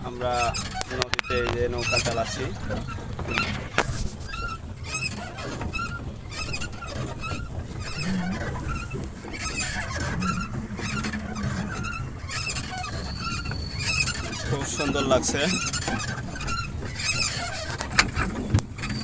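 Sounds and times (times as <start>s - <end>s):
oars squeaking in rowlocks: 0.0s - 19.0s.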